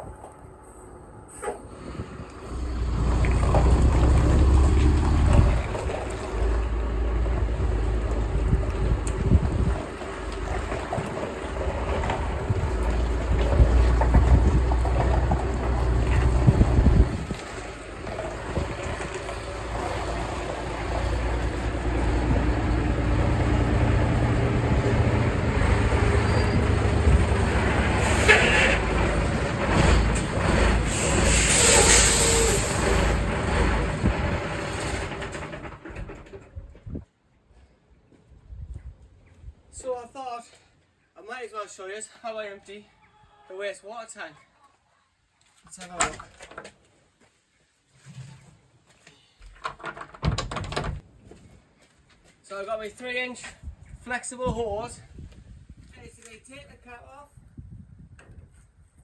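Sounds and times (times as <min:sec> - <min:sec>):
vehicle engine and road rumble: 0:00.0 - 0:37.0.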